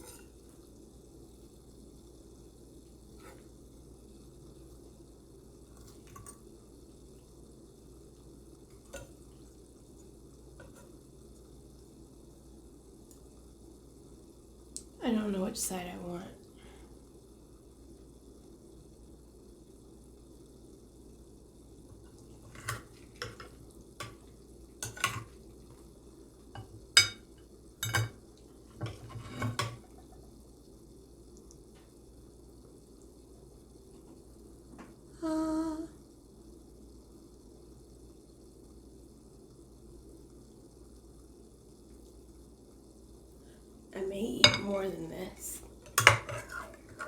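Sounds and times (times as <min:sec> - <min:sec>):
dishes and utensils clinking: 0:00.0 - 0:00.4, 0:24.8 - 0:25.4, 0:26.6 - 0:28.2, 0:28.8 - 0:30.1, 0:44.4 - 0:44.8, 0:45.8 - 0:47.0
low room hum: 0:00.0 - 0:47.0.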